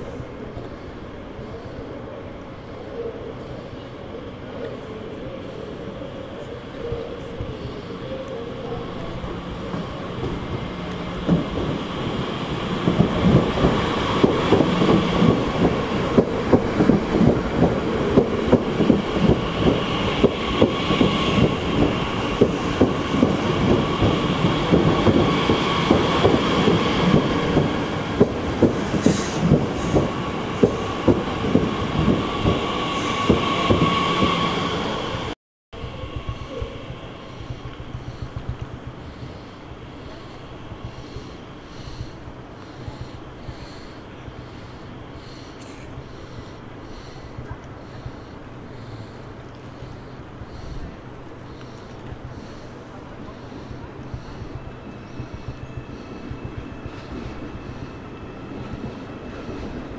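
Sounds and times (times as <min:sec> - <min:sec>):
train wheels clacking on rails: 0:06.8 - 0:59.9
high squealing of train wheels: 0:28.8 - 0:38.4, 0:53.3 - 0:59.9.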